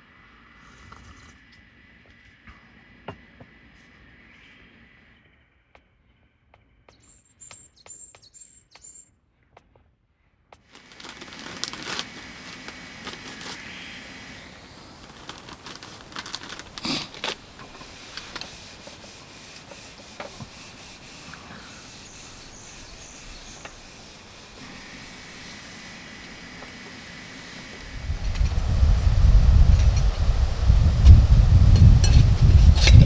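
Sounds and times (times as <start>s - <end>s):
faint bird chirps: 3.8s - 9.2s, 21.3s - 24.6s
rustling and rubbing noise: 10.7s - 33.0s.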